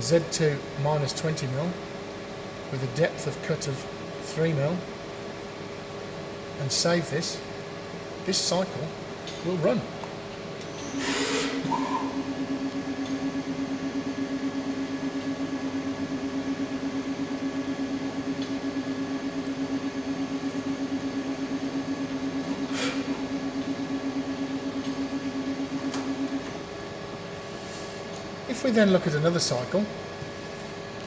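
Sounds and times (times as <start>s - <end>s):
lathe humming with pulsing: 7.4s - 28.5s.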